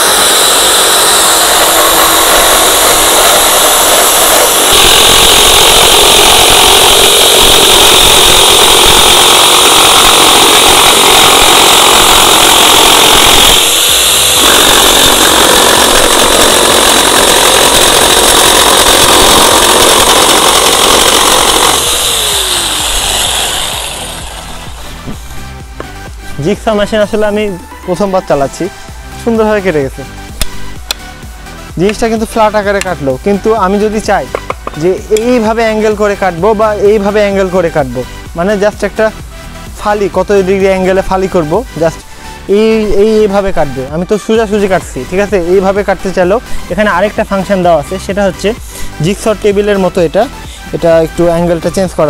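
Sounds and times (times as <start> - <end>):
electric jigsaw cutting wood: 0.0 - 26.2.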